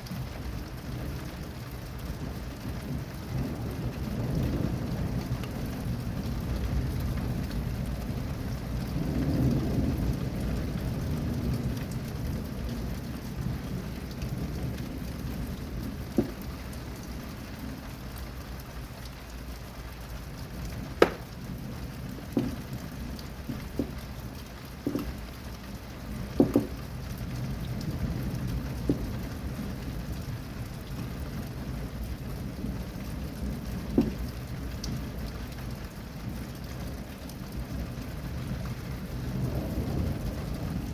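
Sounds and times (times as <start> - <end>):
steady rain: 0.0 - 40.9
low thunder rumble: 2.1 - 18.7, 20.0 - 40.9.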